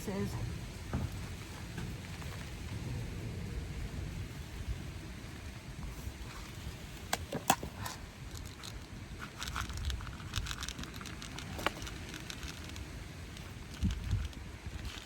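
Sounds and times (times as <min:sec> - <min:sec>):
raindrop taps and crackles: 0:00.0 - 0:05.9
wind rumble on microphone: 0:00.0 - 0:15.0.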